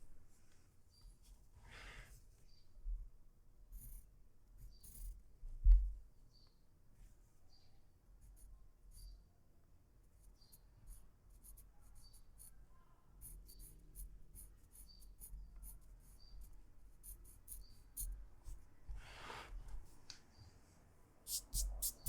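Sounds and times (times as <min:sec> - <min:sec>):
pencil scratching on paper: 0:10.2 - 0:12.6, 0:13.2 - 0:18.6, 0:21.3 - 0:22.0.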